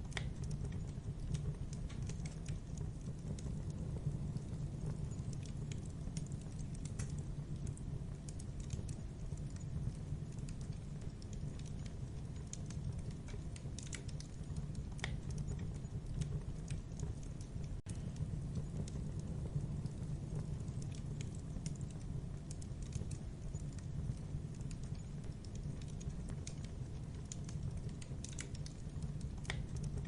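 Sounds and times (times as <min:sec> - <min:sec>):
low rumble of flames: 0:00.0 - 0:30.0
wood fire snapping and popping: 0:00.0 - 0:30.0.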